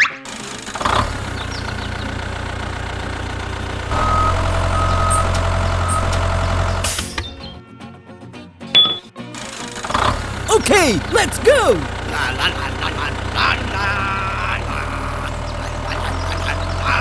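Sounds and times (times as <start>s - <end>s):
vehicle engine running: 0.3s - 7.6s, 11.8s - 17.0s.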